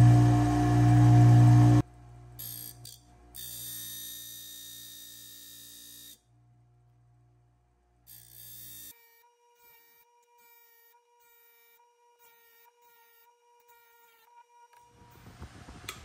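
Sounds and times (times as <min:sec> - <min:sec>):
machine high whine: 0:00.0 - 0:01.8
sharpening machine motor humming: 0:00.0 - 0:01.8, 0:02.4 - 0:06.2, 0:08.1 - 0:14.8.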